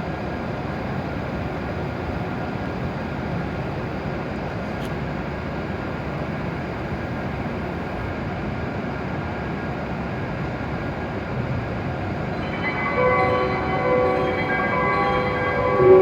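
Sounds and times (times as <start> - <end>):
train hum and rush: 10.6 - 16.0
platform chime: 12.3 - 16.0.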